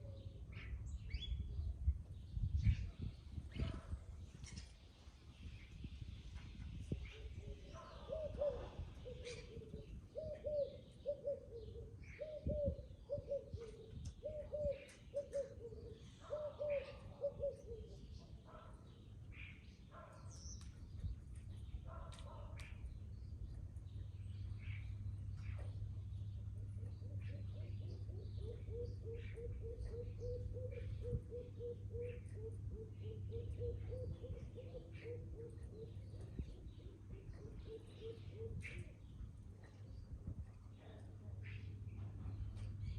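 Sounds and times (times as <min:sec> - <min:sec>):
small birds chirping: 0:00.0 - 0:42.9
dove cooing: 0:07.2 - 0:18.7, 0:26.6 - 0:39.0
low background hum: 0:20.7 - 0:42.9.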